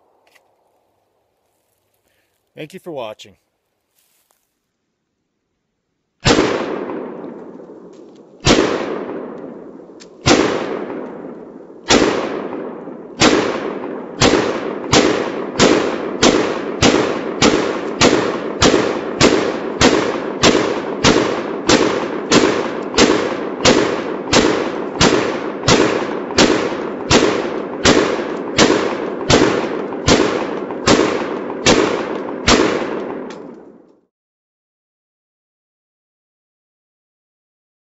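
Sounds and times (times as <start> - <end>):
echoing gunshots: 6.2 - 33.9.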